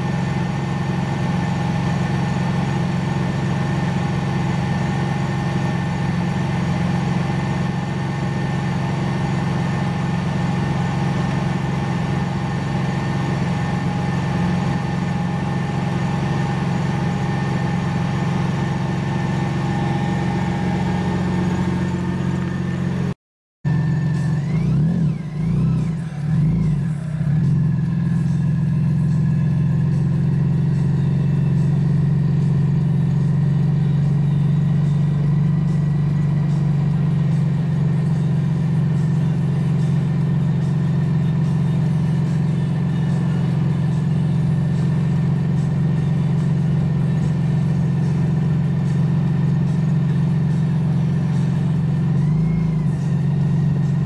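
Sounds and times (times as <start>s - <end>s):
engine revving and idling: 0.0s - 54.0s.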